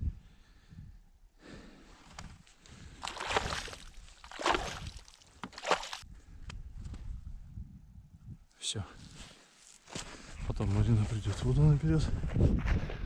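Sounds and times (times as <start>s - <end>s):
water splashing in ice hole: 2.8s - 6.0s.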